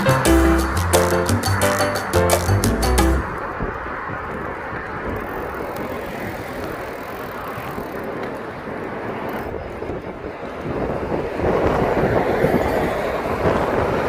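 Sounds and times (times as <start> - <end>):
bicycle tyre rumble: 2.3 - 14.0
wind over microphone: 3.2 - 14.0.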